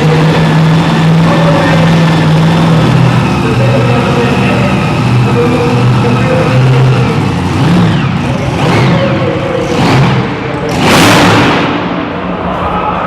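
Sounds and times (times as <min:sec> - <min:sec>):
tractor engine revving: 0:00.0 - 0:12.3
loud rushing blast: 0:09.7 - 0:13.0.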